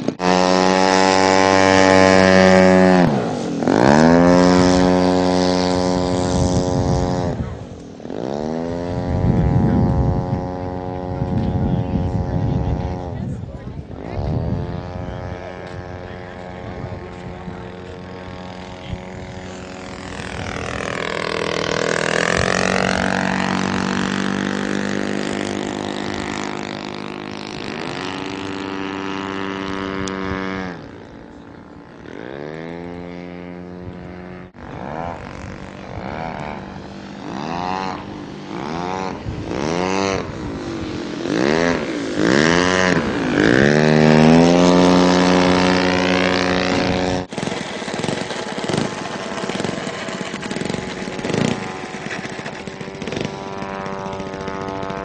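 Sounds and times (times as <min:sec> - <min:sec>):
model airplane engine and propeller: 0:00.0 - 0:55.0.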